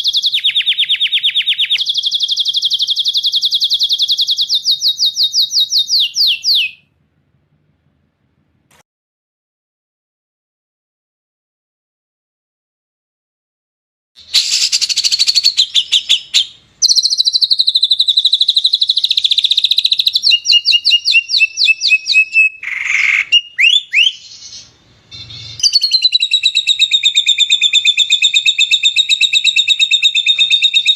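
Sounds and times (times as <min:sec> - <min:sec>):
songbird trills: 0:14.2 - 0:30.9.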